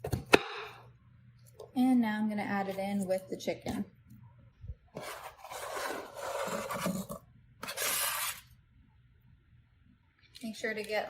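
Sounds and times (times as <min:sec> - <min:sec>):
onion scraped off cutting board: 0:05.0 - 0:08.5.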